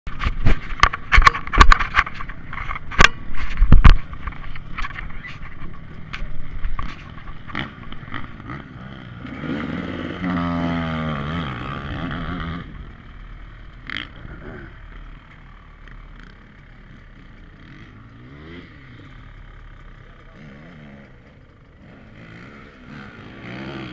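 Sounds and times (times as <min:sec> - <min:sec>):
sharp knocks and clatter: 0:00.1 - 0:08.6
dirt bike engine revving by: 0:06.8 - 0:23.9.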